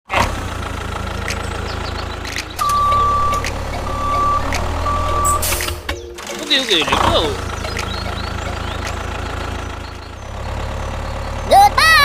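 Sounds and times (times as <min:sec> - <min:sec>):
low motor hum: 0:00.2 - 0:11.7
reversing alarm beeps: 0:02.6 - 0:05.6.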